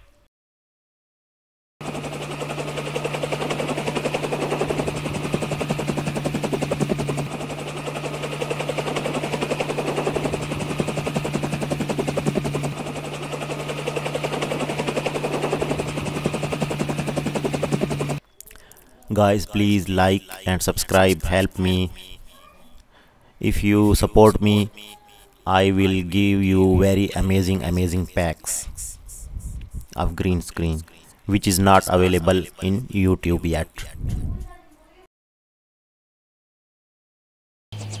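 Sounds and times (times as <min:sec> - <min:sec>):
helicopter engine hum: 0:01.8 - 0:18.2, 0:19.4 - 0:22.4, 0:23.5 - 0:33.0, 0:37.8 - 0:38.0
helicopter rotor blades beating: 0:01.8 - 0:18.2, 0:19.2 - 0:22.4, 0:23.5 - 0:29.3, 0:30.0 - 0:34.4, 0:37.8 - 0:38.0.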